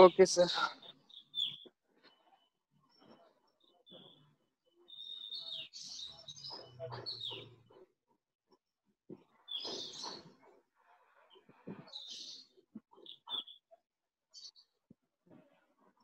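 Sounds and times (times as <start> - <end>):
birds chirping: 0.0 - 1.7
outdoor background noise: 0.0 - 16.0.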